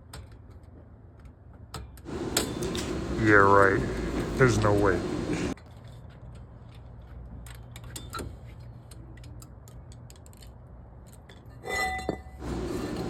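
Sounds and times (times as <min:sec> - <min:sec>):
hand tools clicking on metal: 0:02.0 - 0:04.9
tools clattering: 0:02.1 - 0:04.9
steady low hum: 0:02.1 - 0:05.6, 0:12.4 - 0:13.0.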